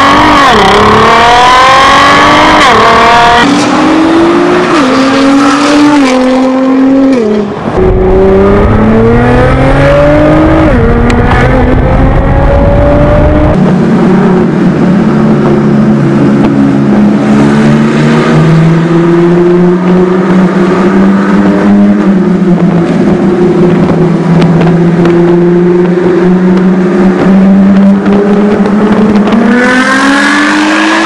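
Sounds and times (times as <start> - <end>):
car engine and exhaust running: 7.6 - 29.5.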